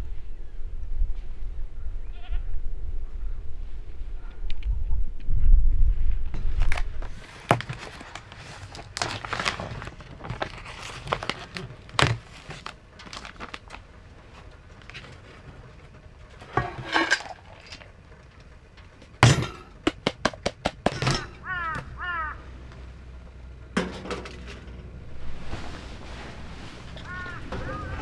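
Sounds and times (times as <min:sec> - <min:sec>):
short rustles: 0:24.0 - 0:28.0.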